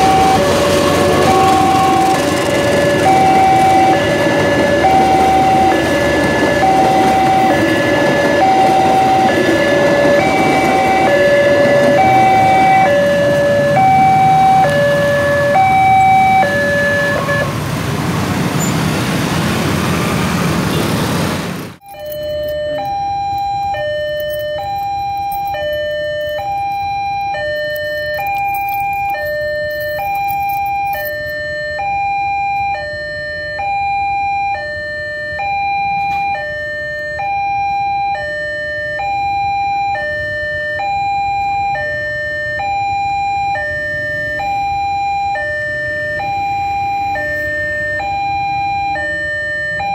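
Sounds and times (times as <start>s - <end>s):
two-tone crossing alarm: 0.0s - 17.6s, 21.8s - 49.9s
train rumble: 0.0s - 31.4s.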